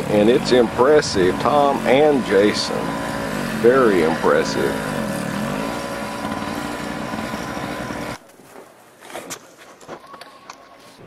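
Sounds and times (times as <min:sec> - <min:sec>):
snow blower engine running: 0:00.0 - 0:08.2.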